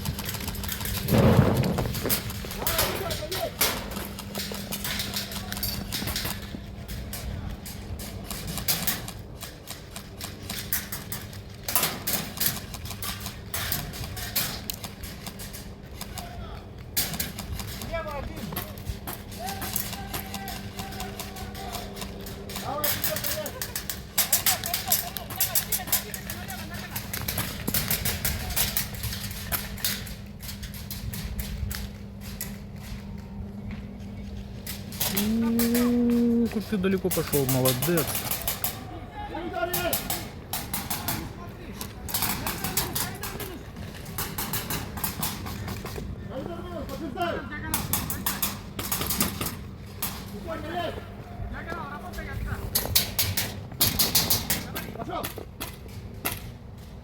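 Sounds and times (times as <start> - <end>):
steady low hum: 0.0 - 57.0
airsoft guns firing: 0.2 - 6.4, 39.6 - 41.4, 42.0 - 45.9.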